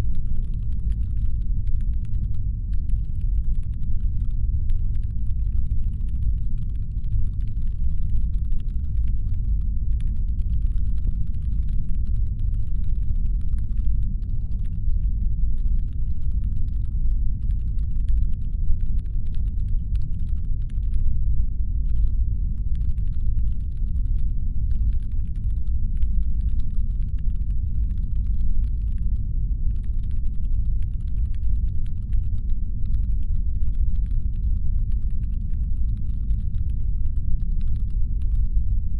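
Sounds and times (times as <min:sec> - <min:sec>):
faint crackle of clicks: 0:00.0 - 0:21.2, 0:21.8 - 0:38.6
deep steady engine hum rumble: 0:00.0 - 0:38.9.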